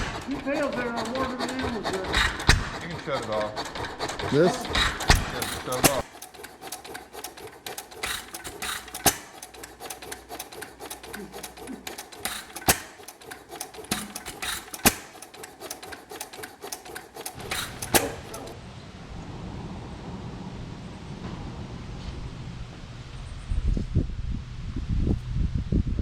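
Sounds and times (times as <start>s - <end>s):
engine clattering clicks: 0.0s - 18.6s.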